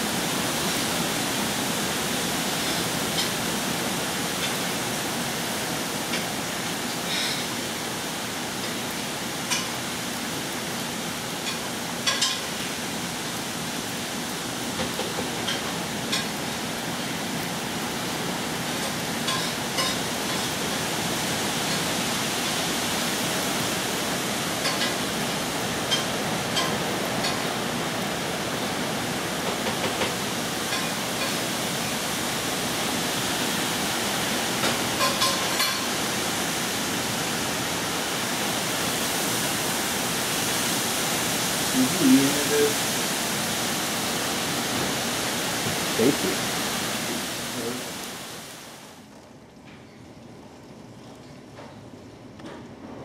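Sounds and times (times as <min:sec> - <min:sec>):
heavy rain hiss: 0:00.0 - 0:49.0.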